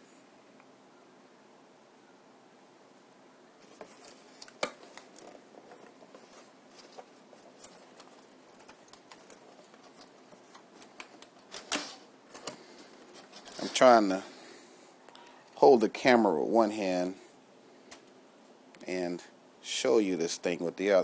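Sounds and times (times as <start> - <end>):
packaging rustling and clicking: 3.6 - 13.8.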